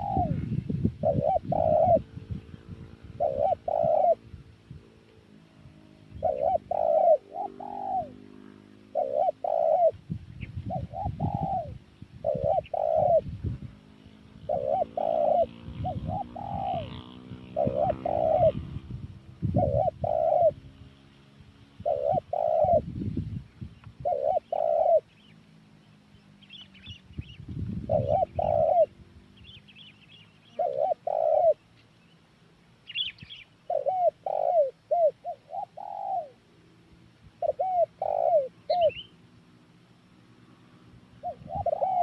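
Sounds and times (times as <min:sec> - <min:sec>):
dove cooing: 0:00.0 - 0:20.9, 0:21.8 - 0:23.0, 0:24.0 - 0:25.3, 0:27.8 - 0:31.7, 0:33.0 - 0:36.6, 0:37.3 - 0:39.1, 0:41.1 - 0:42.0
small birds chirping: 0:00.0 - 0:42.0.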